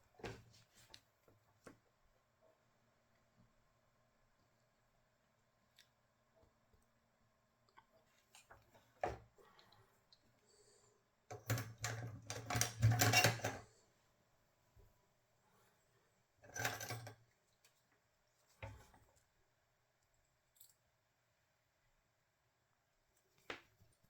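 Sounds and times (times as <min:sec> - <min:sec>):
small tools clicking and rustling: 0:11.3 - 0:13.7.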